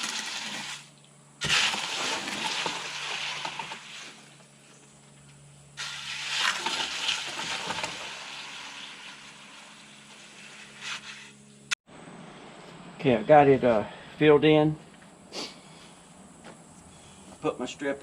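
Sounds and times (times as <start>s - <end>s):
hose water splashing into bucket: 0.0s - 4.5s, 5.8s - 11.3s.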